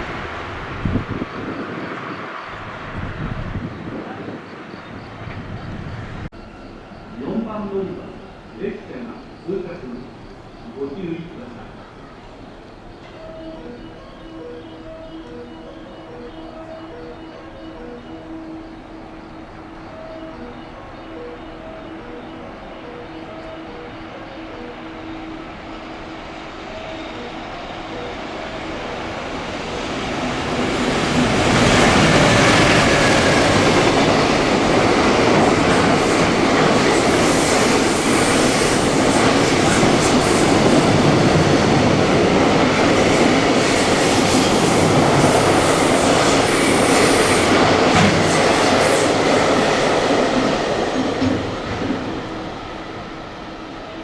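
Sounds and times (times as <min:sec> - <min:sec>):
train passing at speed: 0:00.0 - 0:54.0
train wheel squeal: 0:12.0 - 0:54.0.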